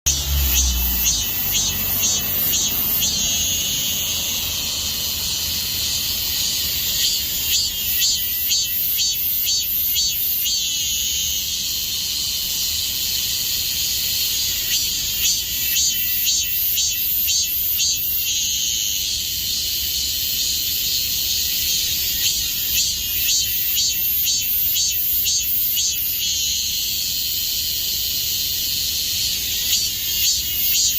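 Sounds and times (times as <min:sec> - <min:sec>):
cicada buzzing: 0:00.1 - 0:30.9.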